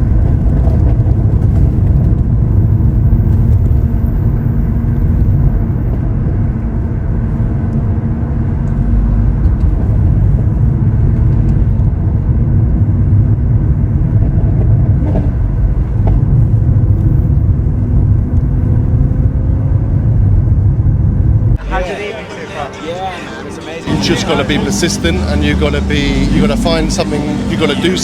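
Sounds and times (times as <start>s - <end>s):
car engine cruising: 0.0s - 28.0s
road rumble: 0.0s - 28.0s.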